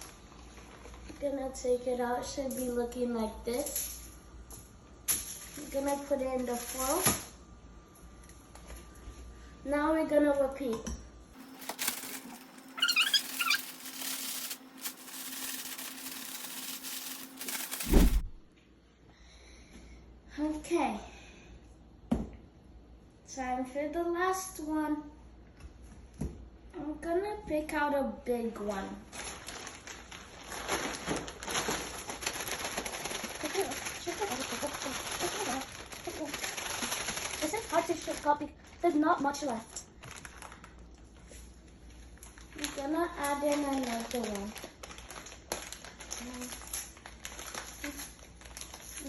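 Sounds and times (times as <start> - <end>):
plastic bag rustling: 11.4 - 18.4, 29.1 - 38.8, 40.0 - 40.8, 43.4 - 49.0
high squeaks: 11.7 - 17.2
short chirp-like calls: 12.7 - 13.8.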